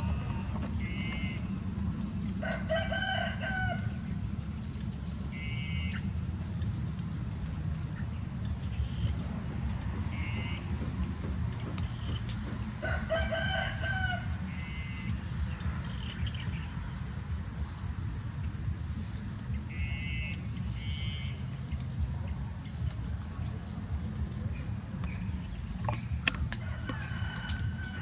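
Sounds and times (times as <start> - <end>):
birds chirping: 0.0 - 28.0
steady high whine: 0.0 - 28.0
rooster crowing: 2.4 - 4.1, 12.1 - 15.0, 26.5 - 28.0.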